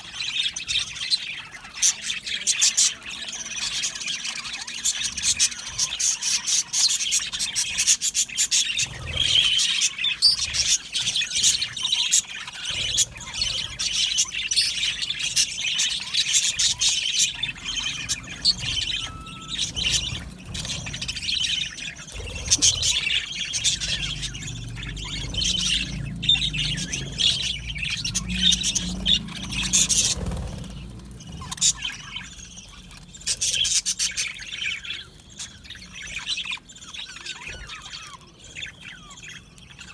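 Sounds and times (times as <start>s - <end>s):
budgerigars chattering: 0.0s - 39.9s
low rumble: 16.4s - 33.0s.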